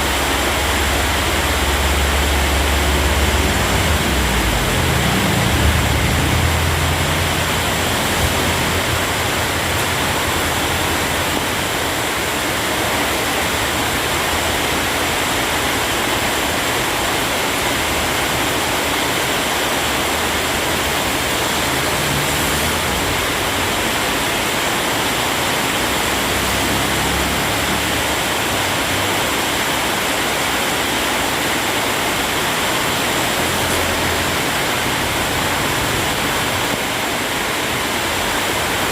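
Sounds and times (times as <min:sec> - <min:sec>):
heavy rain pouring: 0:00.0 - 0:38.9
low rumble: 0:00.7 - 0:09.6.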